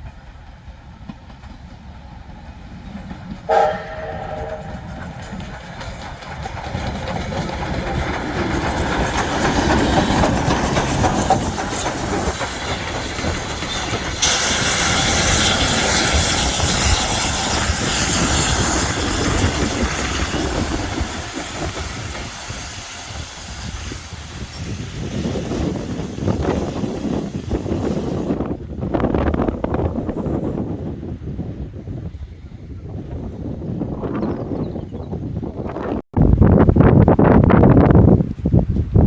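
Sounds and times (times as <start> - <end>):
train wheels clattering on rails: 0.0 - 32.1
steam hissing: 1.8 - 29.3.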